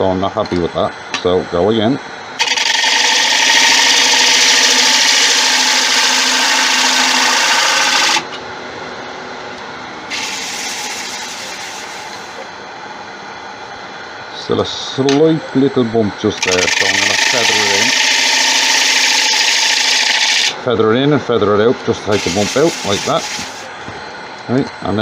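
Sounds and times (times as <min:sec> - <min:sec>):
lathe running quietly: 0:00.0 - 0:25.0
tool cutting wooden bowl: 0:02.4 - 0:08.3, 0:10.1 - 0:12.4, 0:16.4 - 0:20.6, 0:21.9 - 0:23.7.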